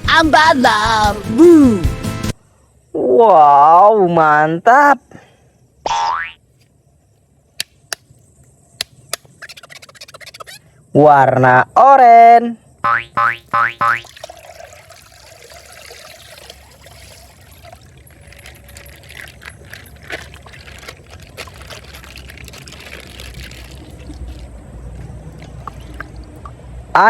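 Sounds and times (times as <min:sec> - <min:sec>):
water trickling from plastic bag: 0:14.0 - 0:26.6.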